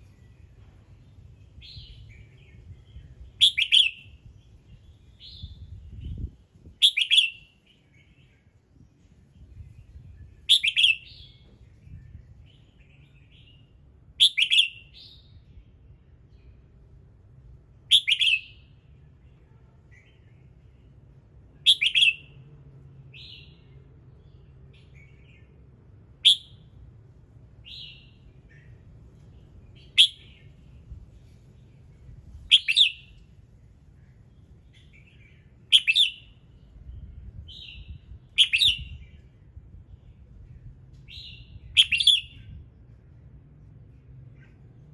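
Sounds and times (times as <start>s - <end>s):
bird singing: 0.0s - 6.2s, 6.8s - 8.6s, 9.3s - 15.5s, 17.9s - 20.9s, 21.6s - 22.4s, 26.2s - 26.7s, 27.6s - 30.7s, 32.5s - 33.3s, 34.0s - 39.4s, 41.1s - 42.6s
soft bird chirps: 0.0s - 16.8s, 27.6s - 42.6s.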